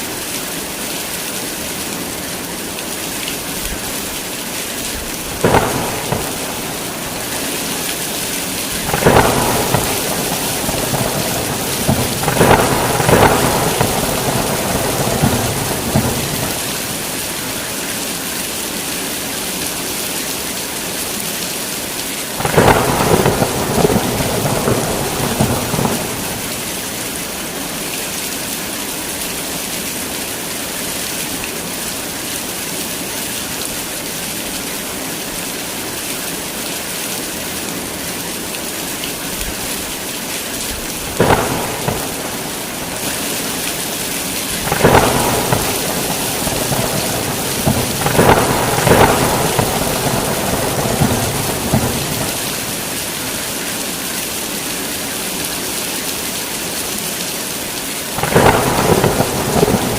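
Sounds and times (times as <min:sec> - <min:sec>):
heavy rain pouring: 0:00.0 - 0:59.9
thunder cracks and rumbling: 0:05.4 - 0:17.2, 0:22.4 - 0:26.8, 0:41.0 - 0:53.0, 0:58.2 - 0:59.9.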